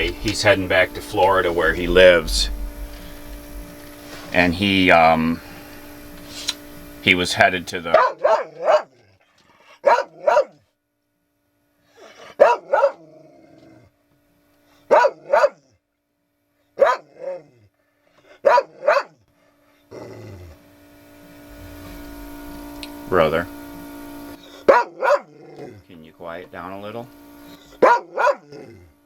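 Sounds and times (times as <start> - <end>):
dog barking: 7.9 - 9.0, 9.8 - 10.6, 12.2 - 13.0, 14.9 - 15.7, 16.8 - 17.4, 18.3 - 19.2, 24.6 - 25.7, 27.8 - 28.6.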